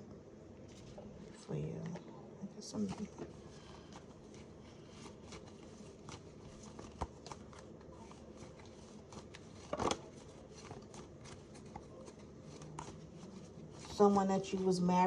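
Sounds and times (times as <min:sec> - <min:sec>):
cards being shuffled: 0:02.8 - 0:14.6.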